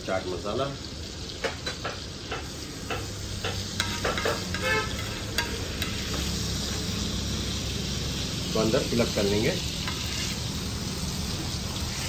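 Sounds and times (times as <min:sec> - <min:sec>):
food sizzling in a pan: 0:00.0 - 0:12.0
metal spatula scraping a pan: 0:01.5 - 0:06.8, 0:09.8 - 0:10.6.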